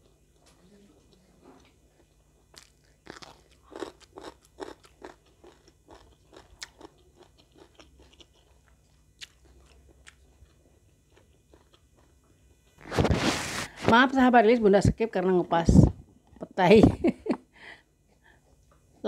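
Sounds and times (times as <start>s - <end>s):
chewing with crisp crunches: 0.0s - 12.8s.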